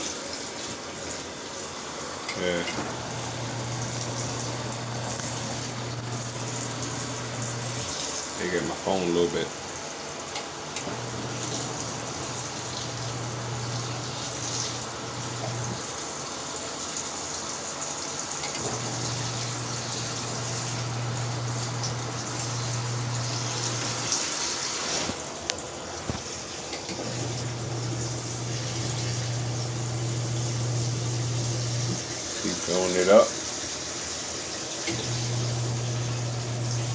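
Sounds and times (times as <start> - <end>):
water running into tub: 0.0 - 36.9
low motor hum: 2.7 - 7.8, 18.6 - 24.1, 27.0 - 32.0, 34.9 - 36.9.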